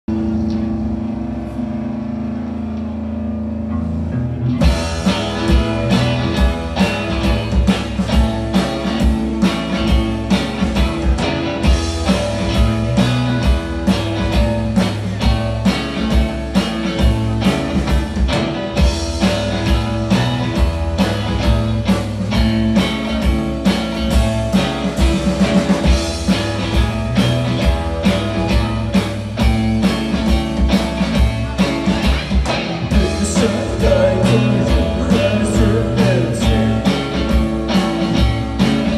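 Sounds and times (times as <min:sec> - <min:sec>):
rock band playing live: 0:00.1 - 0:38.9.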